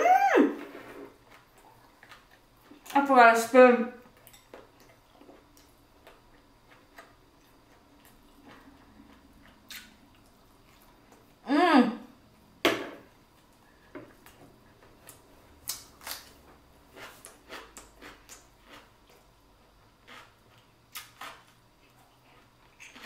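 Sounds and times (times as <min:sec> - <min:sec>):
person biting and chewing: 0:04.8 - 0:10.9, 0:15.0 - 0:19.2, 0:20.0 - 0:23.0.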